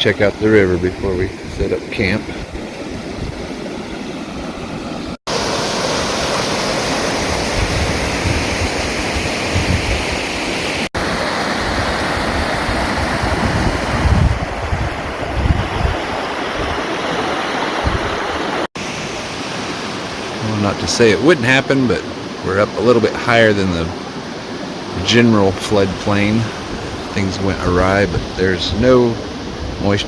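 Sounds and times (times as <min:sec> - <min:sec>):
wind gusts on microphone: 0:00.0 - 0:18.7, 0:24.3 - 0:30.0
river rushing: 0:00.0 - 0:30.0.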